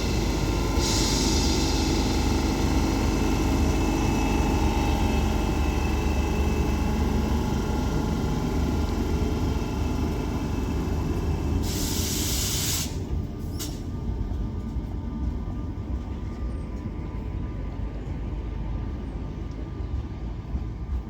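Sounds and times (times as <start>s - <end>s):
electric train low rumble: 0.0s - 21.0s
air hiss burst: 0.8s - 2.1s, 11.6s - 13.0s.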